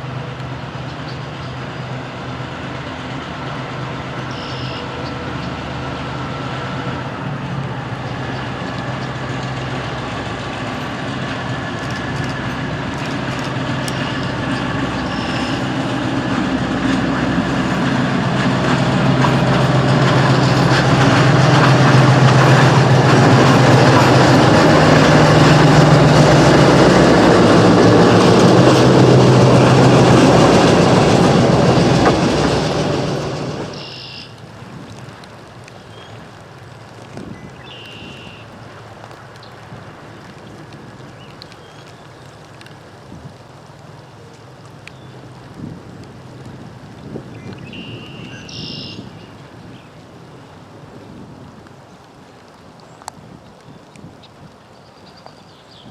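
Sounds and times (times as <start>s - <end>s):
locomotive diesel engine running: 0.0s - 34.2s
wheel and rail noise: 0.0s - 55.9s.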